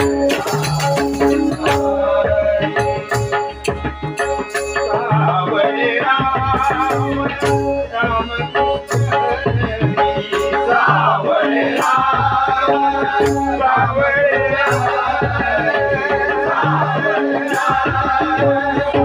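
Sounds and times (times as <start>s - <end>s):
metallic percussion strokes: 0.0s - 5.2s
sustained melodic instrument: 0.0s - 5.8s
hand drum rhythm: 0.0s - 19.0s.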